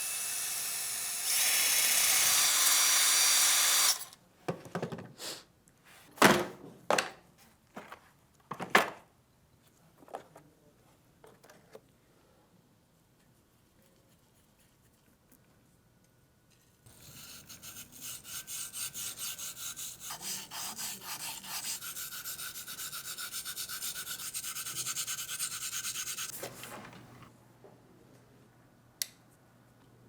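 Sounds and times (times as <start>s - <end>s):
hand rubbing metal part: 16.9s - 27.3s.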